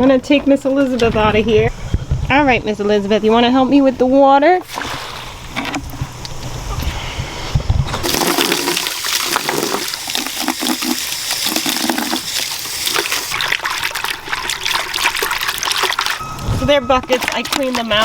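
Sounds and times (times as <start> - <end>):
hose water splashing into bucket: 4.6 - 6.0, 8.0 - 16.2, 17.1 - 18.0.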